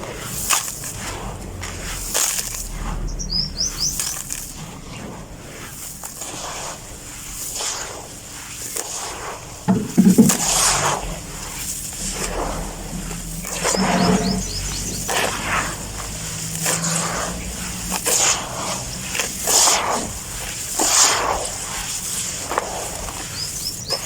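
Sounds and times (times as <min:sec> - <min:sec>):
bird chirping: 0:03.1 - 0:04.3, 0:13.6 - 0:15.1.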